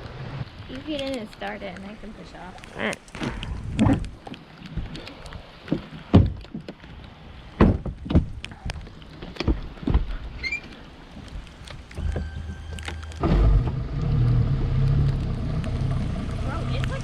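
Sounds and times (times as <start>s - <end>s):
knocks and thumps in a boat: 3.2s - 17.0s
pouring rain hiss: 10.6s - 17.0s.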